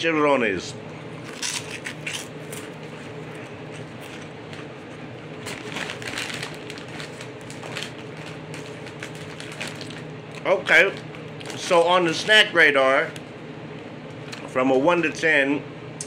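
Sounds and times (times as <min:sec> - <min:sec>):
steady low hum: 0:00.0 - 0:16.0
crunchy food being chewed: 0:01.0 - 0:11.7.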